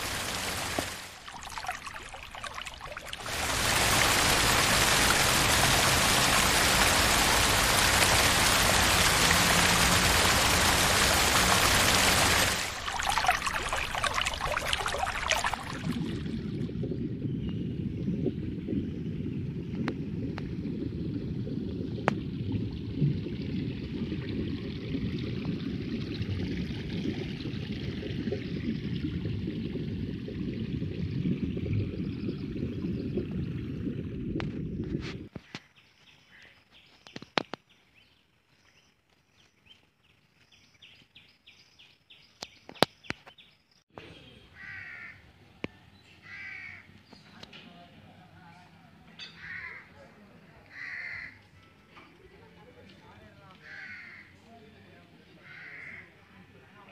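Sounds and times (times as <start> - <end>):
rainwater rushing down street: 0.0 - 16.7
crows cawing: 44.6 - 45.2, 46.2 - 46.9, 49.4 - 49.9, 50.7 - 51.4, 53.6 - 54.3, 55.4 - 56.1.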